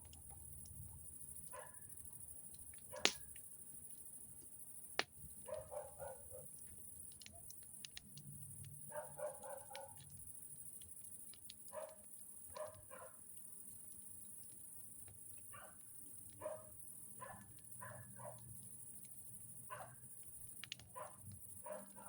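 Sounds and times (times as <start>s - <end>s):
sharp pops: 3.0s - 3.4s
dog barking faintly: 5.4s - 6.5s, 8.9s - 10.0s, 11.7s - 13.2s, 16.4s - 18.5s, 20.9s - 22.0s.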